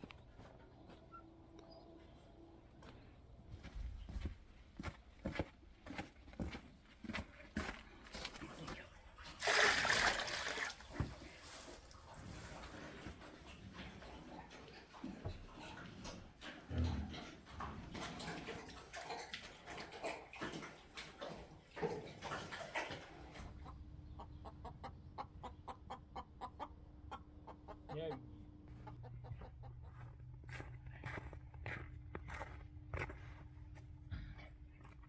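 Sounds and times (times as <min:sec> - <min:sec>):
chickens clucking: 0:12.2 - 0:30.2.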